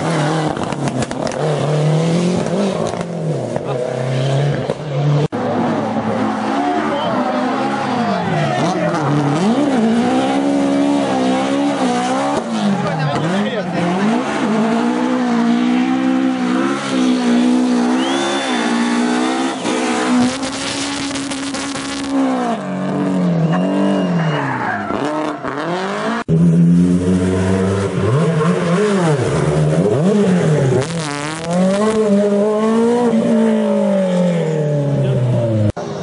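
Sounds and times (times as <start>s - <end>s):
rally car engines revving: 0.0s - 36.0s
tyre squeal: 16.8s - 20.2s, 23.3s - 25.6s.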